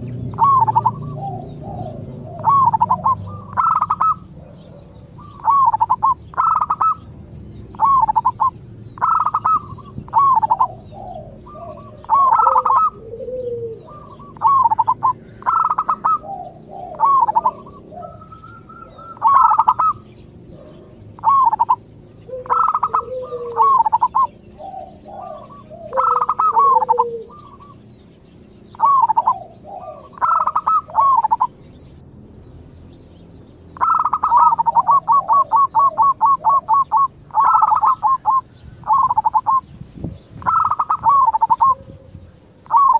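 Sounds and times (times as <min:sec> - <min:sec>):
doves cooing: 0:00.0 - 0:32.0, 0:33.7 - 0:42.9.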